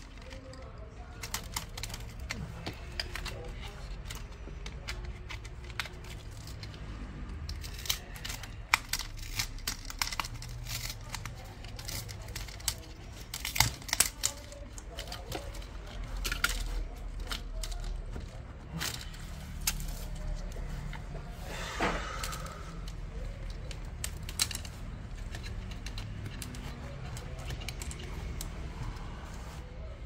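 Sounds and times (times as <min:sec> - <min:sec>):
plastic clips snapping: 0:00.0 - 0:21.2, 0:21.9 - 0:29.0.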